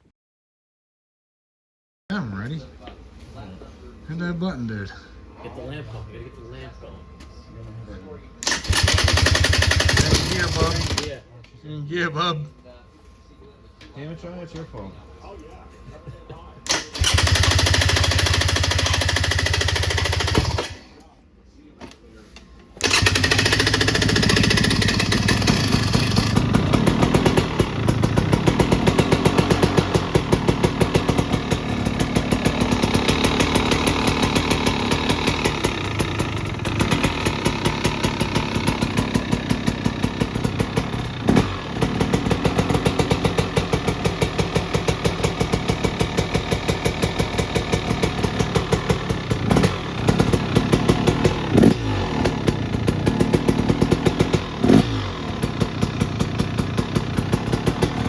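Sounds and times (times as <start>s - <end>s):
two-stroke engine running: 8.4s - 11.2s, 16.7s - 20.9s, 22.8s - 58.0s.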